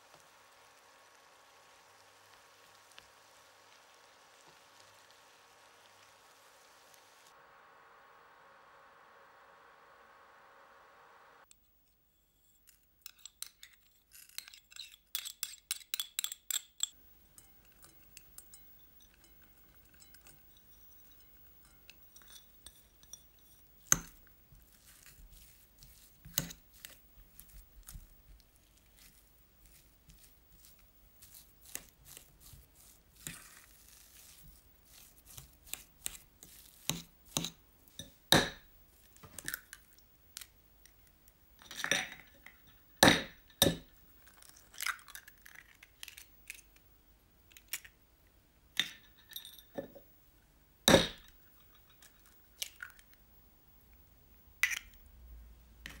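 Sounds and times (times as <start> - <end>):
clinks of glass or crockery: 48.8 - 50.0.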